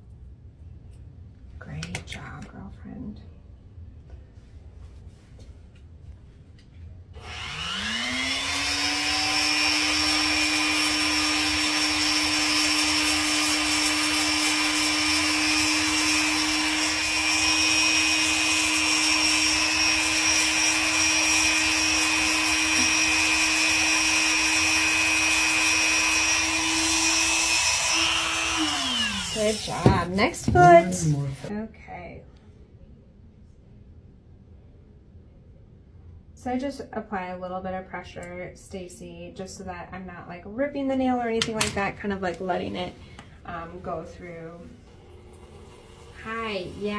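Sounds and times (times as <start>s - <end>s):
rotary nail grinder whining: 7.2s - 31.5s.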